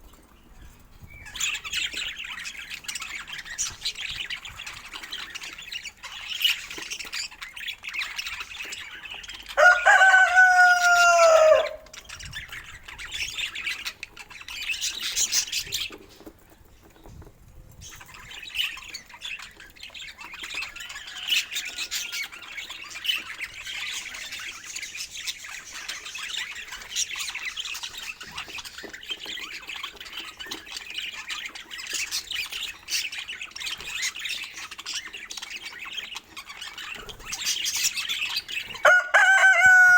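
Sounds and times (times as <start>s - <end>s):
louder steady bird call: 9.6s - 12.0s
budgerigars chattering: 17.9s - 39.9s.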